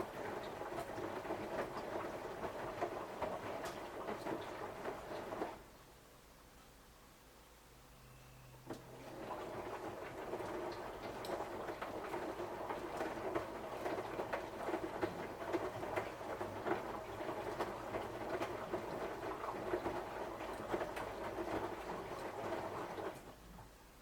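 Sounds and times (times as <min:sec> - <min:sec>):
laundry tumbling and water splashing: 0:00.0 - 0:05.8, 0:08.6 - 0:24.0
washing machine drum turning: 0:08.6 - 0:23.3.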